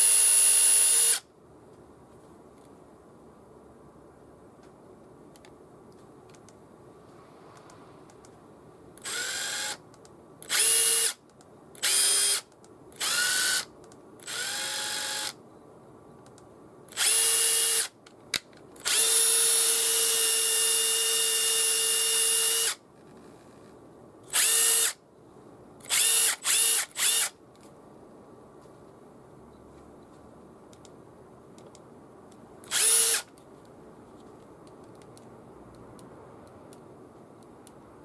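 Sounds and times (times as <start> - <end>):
impact driver motor spinning: 24.4 - 25.0, 25.9 - 27.3, 32.7 - 33.2.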